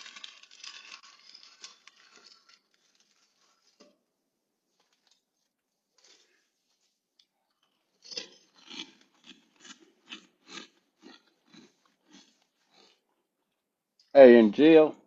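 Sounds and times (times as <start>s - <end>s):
person chewing crunchy food: 0.0s - 3.0s, 7.2s - 13.6s.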